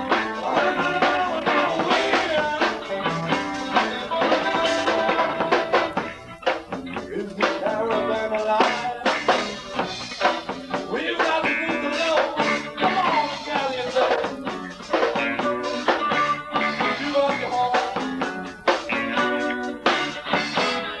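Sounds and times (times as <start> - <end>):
drum hits: 0.0 - 13.2
live rock band playing: 0.0 - 21.0.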